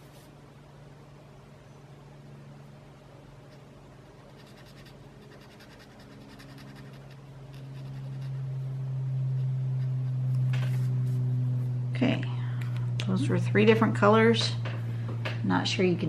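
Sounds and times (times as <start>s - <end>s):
steady low hum: 0.0s - 16.0s
pencil scratching on paper: 4.2s - 8.6s, 9.3s - 11.2s.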